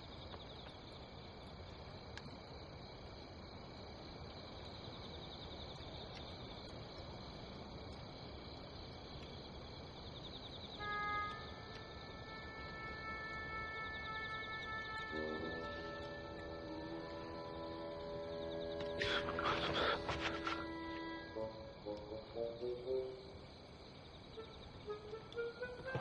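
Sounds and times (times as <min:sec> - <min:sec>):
crickets chirping: 0:00.0 - 0:26.0
steady low hiss: 0:00.0 - 0:26.0
sustained music notes: 0:10.8 - 0:23.6, 0:24.3 - 0:26.0.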